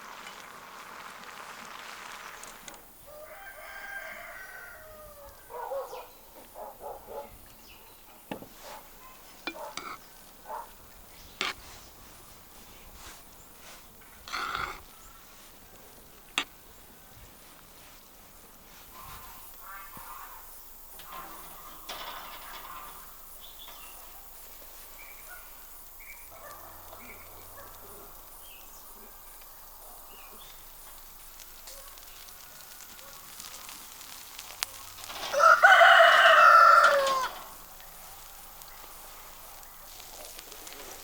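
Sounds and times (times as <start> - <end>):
rooster crowing: 3.0 - 6.0, 26.4 - 27.7, 35.2 - 37.7.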